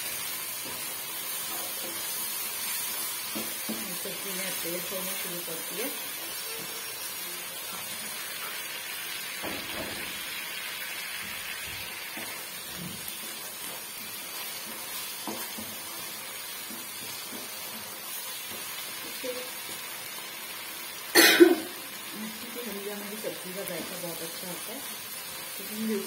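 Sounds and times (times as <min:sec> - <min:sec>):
vegetables sizzling in a wok: 0:00.0 - 0:26.0.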